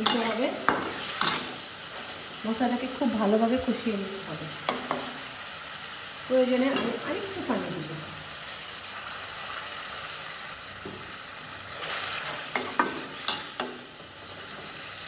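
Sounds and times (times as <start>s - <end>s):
spoon stirring in a pan: 0.0s - 2.2s, 4.6s - 5.2s, 11.7s - 14.8s
food sizzling in a pan: 0.0s - 15.0s.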